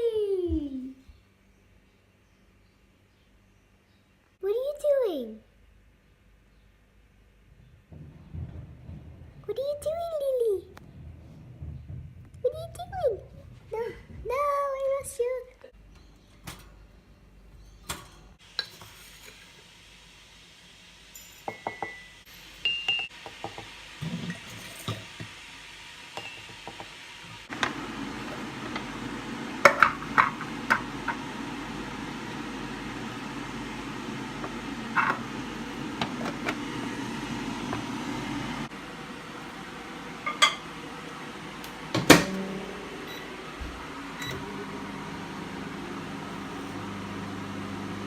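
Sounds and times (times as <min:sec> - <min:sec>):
appliance humming: 0:07.3 - 0:48.0
dishes and utensils clinking: 0:21.1 - 0:25.2, 0:26.2 - 0:26.8, 0:40.2 - 0:40.7.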